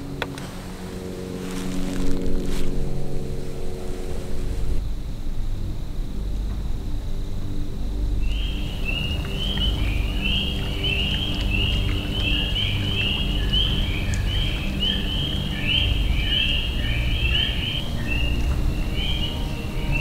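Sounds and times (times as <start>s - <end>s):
low steady hum: 0.0s - 20.0s
small birds chirping: 8.2s - 20.0s.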